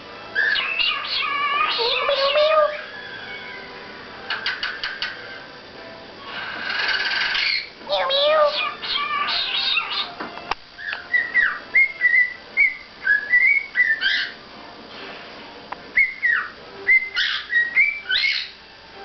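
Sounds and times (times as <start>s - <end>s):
cockatiel whistling: 0.3s - 3.7s, 6.7s - 10.1s, 10.8s - 14.4s, 16.0s - 18.6s.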